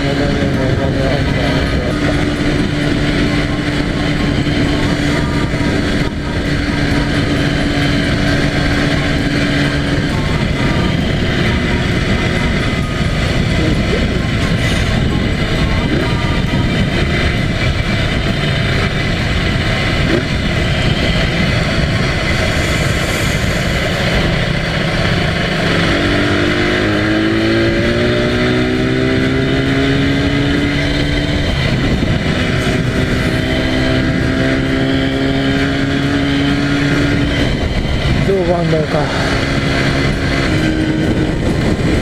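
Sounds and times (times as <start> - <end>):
motorcycle engine accelerating: 0.0 - 42.0
wind noise: 0.0 - 42.0.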